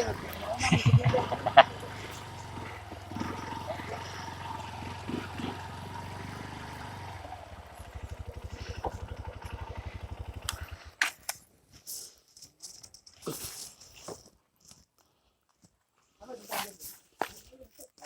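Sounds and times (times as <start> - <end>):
motorcycle engine idling: 0.0 - 11.3.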